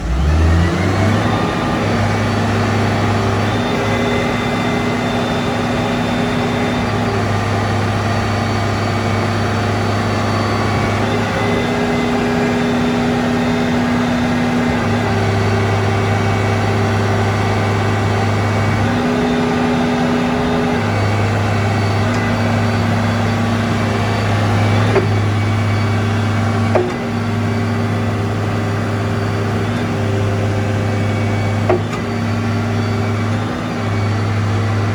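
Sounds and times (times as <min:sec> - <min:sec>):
diesel engine humming: 0:00.0 - 0:34.9.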